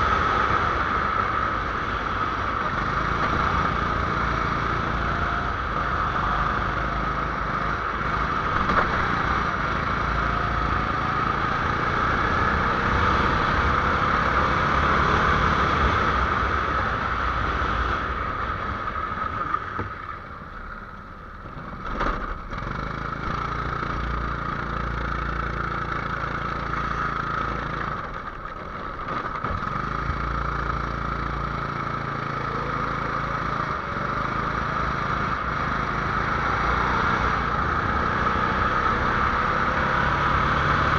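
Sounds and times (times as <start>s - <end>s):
small engine running under load: 21.4s - 40.9s.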